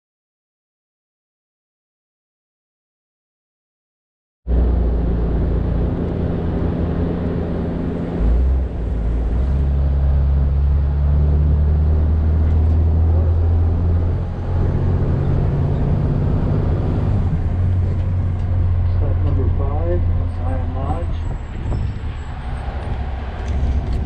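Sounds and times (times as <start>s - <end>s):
vehicle engine hum: 4.5s - 24.0s.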